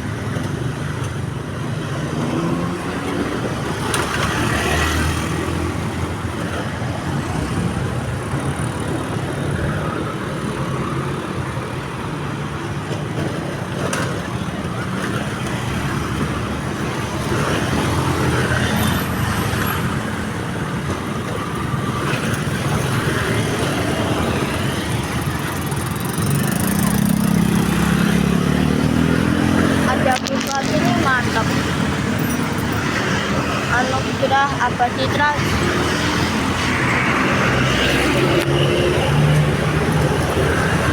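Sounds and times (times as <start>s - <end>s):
car engines passing: 0.0s - 40.9s
motorcycle engines passing: 0.0s - 40.9s.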